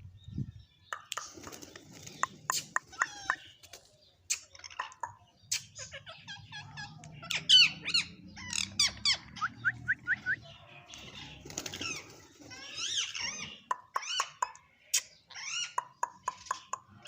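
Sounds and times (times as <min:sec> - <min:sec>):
parrot chattering and squawking: 0:02.5 - 0:03.6, 0:04.3 - 0:09.6, 0:11.8 - 0:17.0.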